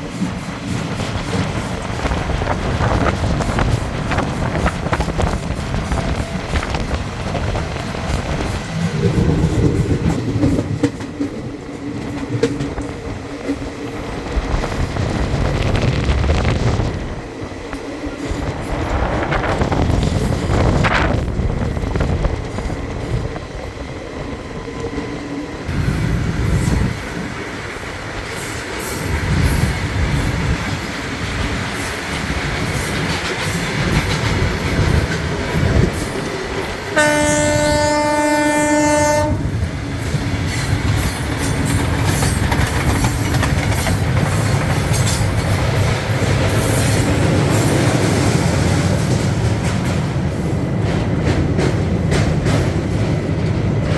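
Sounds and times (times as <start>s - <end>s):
train wheels clacking on rails: 0.0s - 53.9s
train horn blast: 36.9s - 39.6s.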